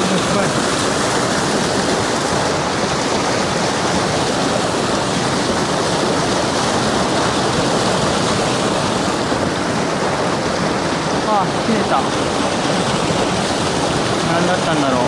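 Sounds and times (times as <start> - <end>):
stream water rushing over rocks: 0.0 - 15.0.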